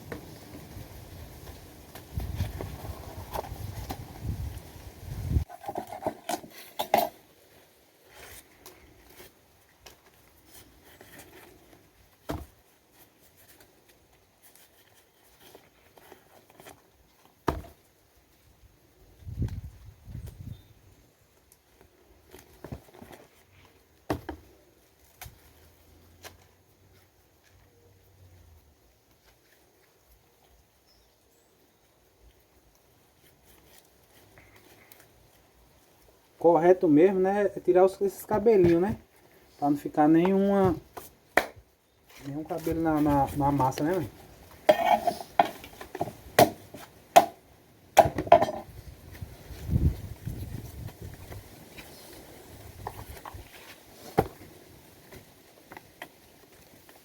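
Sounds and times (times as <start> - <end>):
corn husks cracking and tearing: 21.4 - 27.6
corn husks tearing and crackling: 21.4 - 27.7, 32.3 - 41.2, 42.0 - 47.0.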